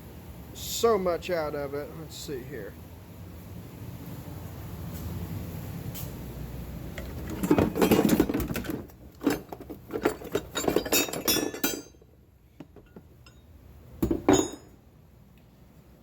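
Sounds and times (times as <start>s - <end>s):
metal parts clinking and rattling: 6.9s - 13.4s, 14.0s - 14.8s.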